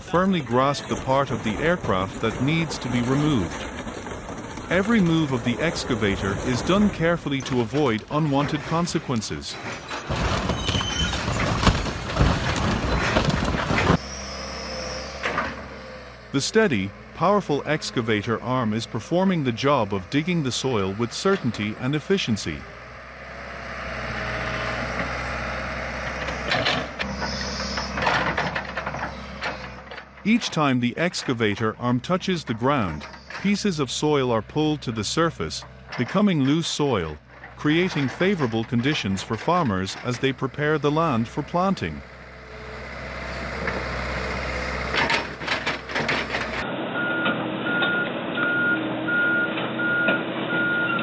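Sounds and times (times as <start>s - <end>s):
excavator engine running: 0.0s - 51.0s
metal knocks clatter: 0.1s - 14.0s, 26.1s - 27.2s, 27.8s - 31.7s, 43.4s - 46.6s
backup alarm beeping: 47.0s - 51.0s.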